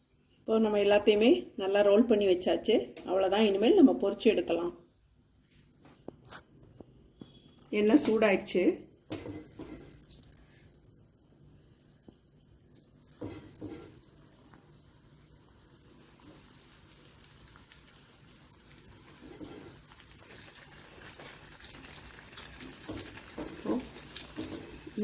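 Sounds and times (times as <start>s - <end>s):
food deep-frying in hot oil: 8.0s - 25.0s.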